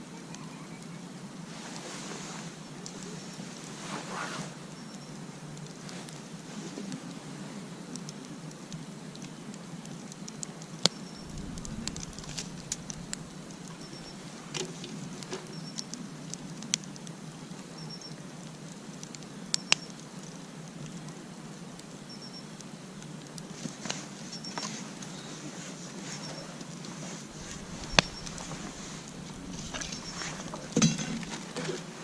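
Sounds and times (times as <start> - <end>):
steady low hiss: 0.0 - 32.0
campfire crackling: 0.2 - 32.0
fire popping: 7.9 - 32.0.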